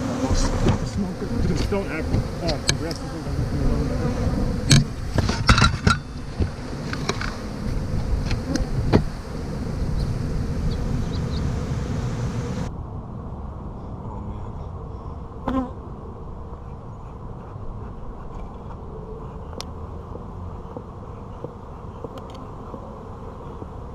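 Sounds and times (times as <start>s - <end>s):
bees buzzing: 0.0s - 12.7s, 19.6s - 23.9s.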